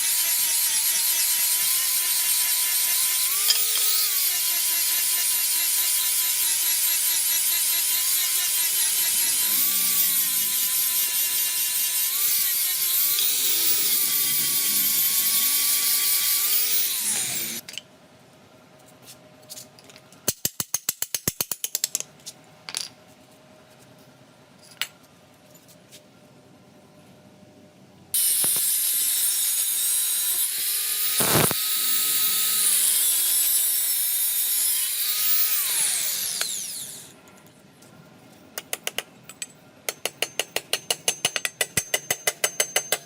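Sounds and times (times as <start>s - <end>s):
power tool motor whine: 0.1s - 17.6s, 28.2s - 37.1s.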